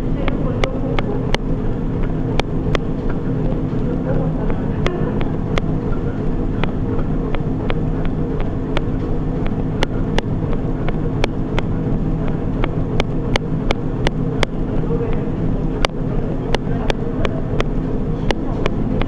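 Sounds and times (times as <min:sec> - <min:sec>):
treadmill machine hum: 0:00.0 - 0:19.0.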